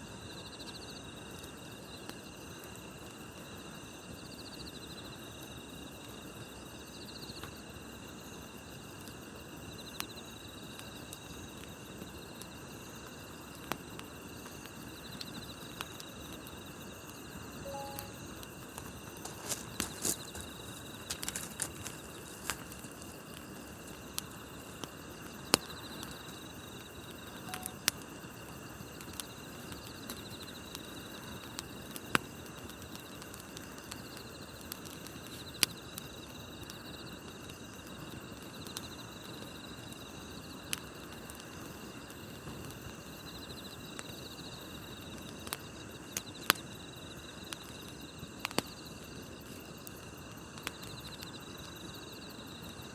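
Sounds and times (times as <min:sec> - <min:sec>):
crickets chirping: 0:00.0 - 0:52.9
campfire crackling: 0:05.2 - 0:52.9
sharp pops of fire: 0:10.7 - 0:28.2, 0:47.4 - 0:52.0.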